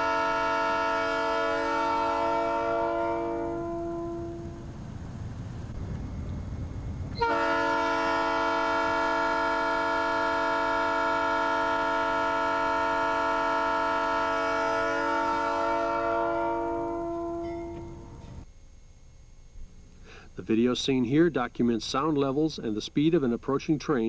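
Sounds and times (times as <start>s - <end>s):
locomotive air horn blast: 0.0s - 4.7s, 7.2s - 18.2s
low train rumble: 0.0s - 24.0s.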